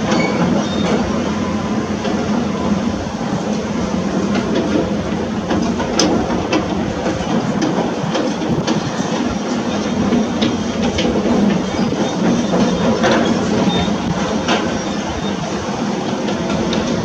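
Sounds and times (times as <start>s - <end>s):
diesel engine hum: 0.0s - 17.0s.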